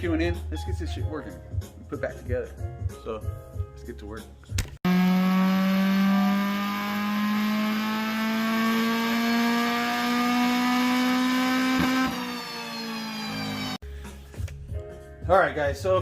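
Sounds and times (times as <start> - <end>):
car engine revving under load: 4.9 - 13.8.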